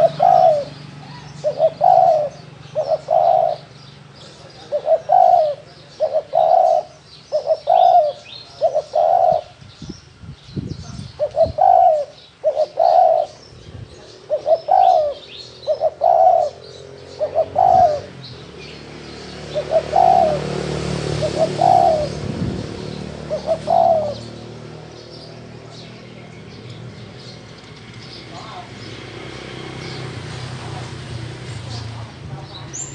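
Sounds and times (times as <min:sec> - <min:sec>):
dove cooing: 0:00.0 - 0:03.8, 0:04.5 - 0:09.6, 0:11.2 - 0:18.3, 0:19.4 - 0:24.8
small birds chirping: 0:00.0 - 0:32.9.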